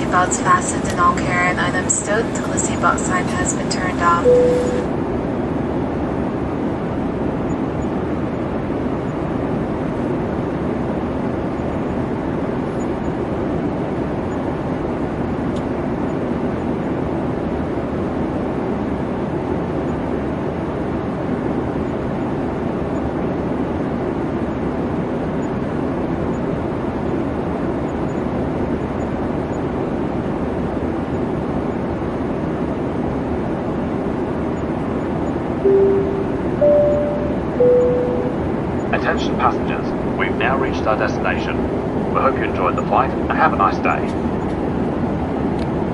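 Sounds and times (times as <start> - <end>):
airliner cabin noise: 0.0 - 16.0, 35.7 - 45.9.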